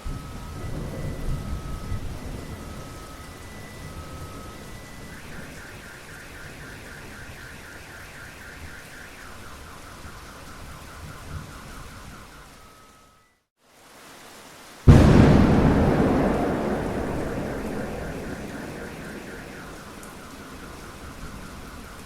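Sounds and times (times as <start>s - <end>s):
steady rain: 13.6s - 22.0s.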